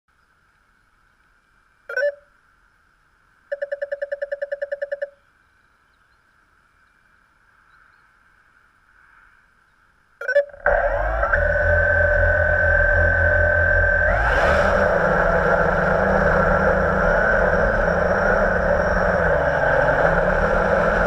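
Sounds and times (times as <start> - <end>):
faint steady hiss: 0.1 - 10.4
quadcopter electronic beeps: 10.2 - 21.0.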